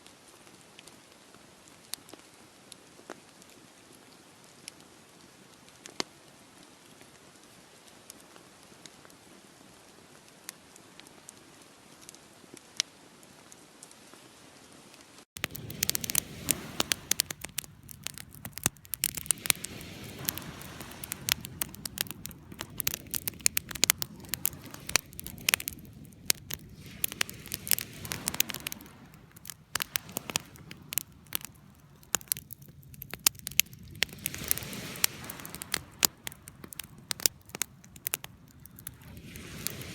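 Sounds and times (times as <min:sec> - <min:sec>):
wood fire crackling and popping: 0:15.4 - 0:39.9.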